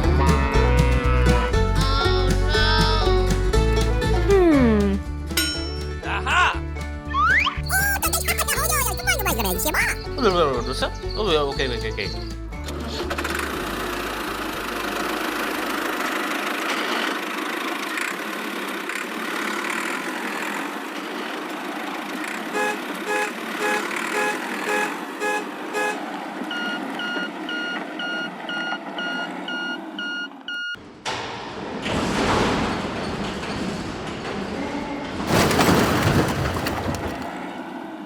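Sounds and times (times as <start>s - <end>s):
vehicle running noise: 12.4s - 30.0s.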